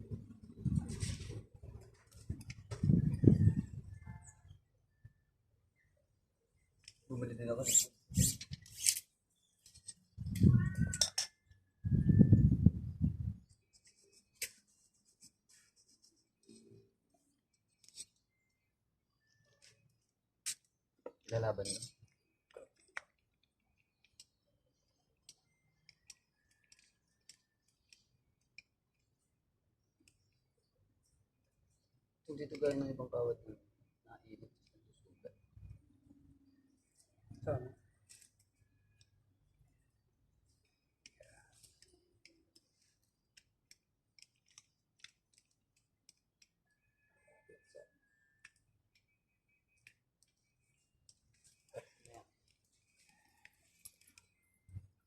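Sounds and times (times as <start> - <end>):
small parts and tools clicking: 6.8 - 11.7, 13.6 - 18.6, 19.2 - 30.5, 40.4 - 46.9, 48.2 - 55.0
small metal parts clicking: 7.6 - 11.4.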